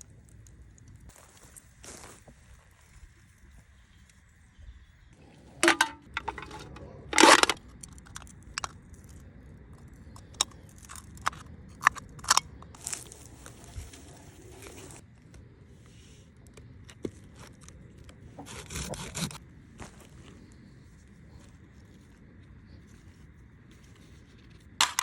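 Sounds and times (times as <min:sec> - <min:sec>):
dry wood crunching: 0:10.1 - 0:15.0, 0:17.0 - 0:21.4.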